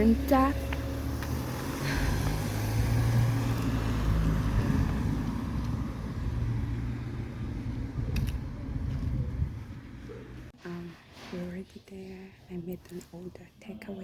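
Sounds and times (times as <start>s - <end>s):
road traffic rumble: 0.0s - 10.6s.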